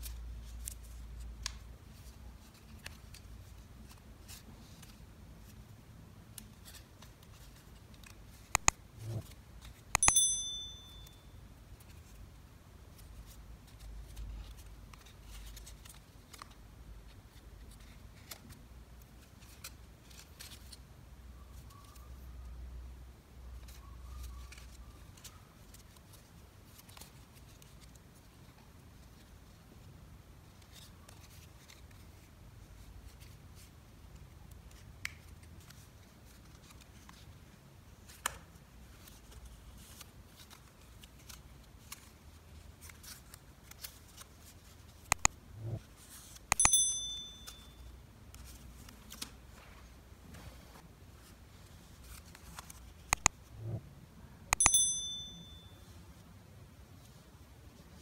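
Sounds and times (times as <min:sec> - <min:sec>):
sharp clicks: 0:08.6 - 0:08.8, 0:45.1 - 0:45.4, 0:46.5 - 0:46.9
low steady hum: 0:45.1 - 0:45.9, 0:53.2 - 0:55.9.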